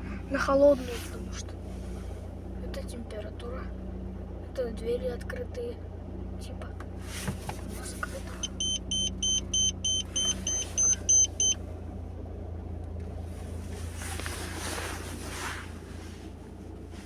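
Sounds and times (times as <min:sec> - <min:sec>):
car engine idling: 0:00.0 - 0:17.0
high-pitched warning buzzer beeping: 0:08.4 - 0:11.6.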